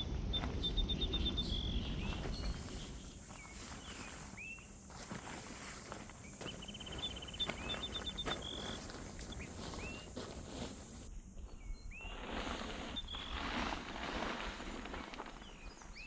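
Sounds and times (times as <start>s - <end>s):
birds calling: 0.0s - 13.5s
rustling: 2.1s - 11.1s.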